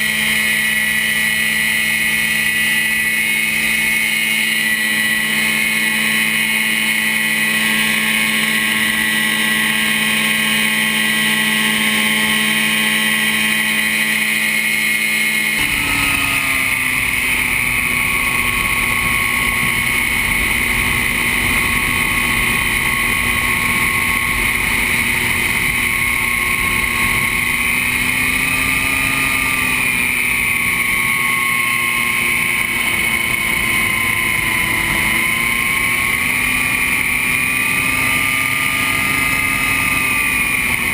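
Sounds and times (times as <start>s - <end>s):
ultralight engine and propeller drone: 0.0s - 40.9s
wind rush: 15.6s - 28.5s.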